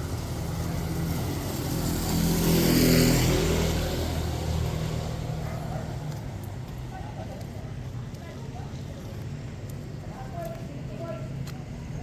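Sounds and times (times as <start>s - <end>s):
vehicle passing on wet road: 0.0s - 6.0s.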